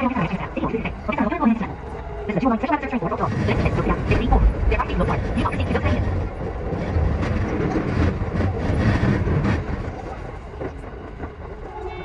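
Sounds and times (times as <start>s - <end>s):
train wheels rumbling on rail: 0.0s - 12.0s
brief tone: 11.7s - 12.0s.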